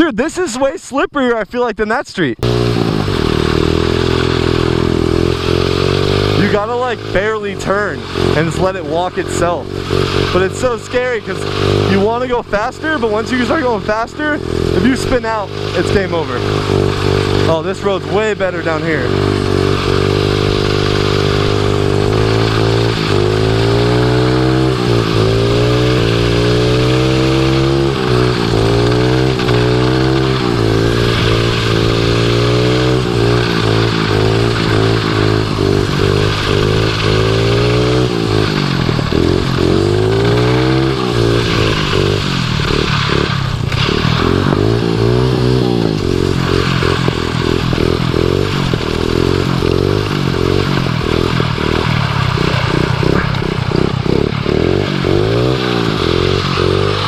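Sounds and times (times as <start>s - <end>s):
small motorbike engine revving: 2.4s - 57.0s.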